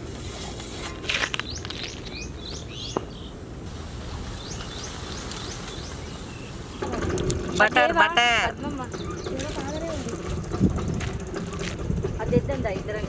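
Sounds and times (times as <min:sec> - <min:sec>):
small bird chirping: 0:01.2 - 0:03.4, 0:08.7 - 0:10.6.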